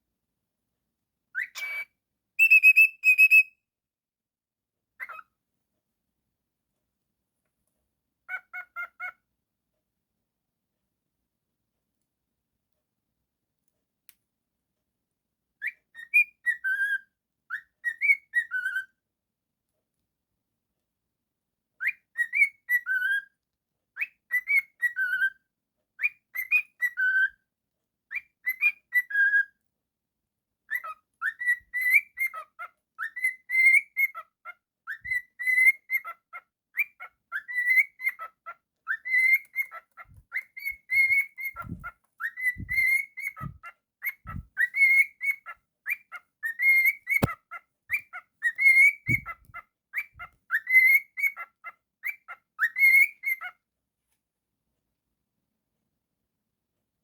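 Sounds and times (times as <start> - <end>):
cockatiel whistling: 1.4 - 3.5, 38.9 - 49.4, 50.0 - 51.5, 52.1 - 53.5
soft low thumps: 41.6 - 41.9, 42.6 - 43.6, 44.3 - 44.6, 49.1 - 49.5.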